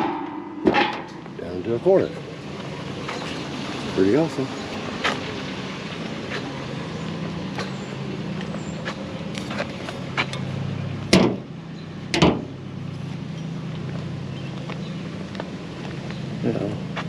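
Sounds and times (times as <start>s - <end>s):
loud bangs: 0.0s - 1.5s
vehicle engine running: 0.0s - 17.0s.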